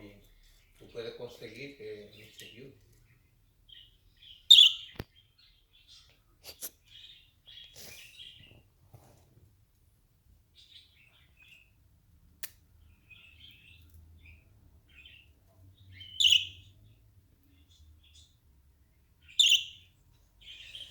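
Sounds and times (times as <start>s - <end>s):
pet birds chirping: 0.0s - 20.9s
loud sharp bird calls: 3.7s - 5.0s, 15.9s - 16.7s, 19.2s - 20.9s.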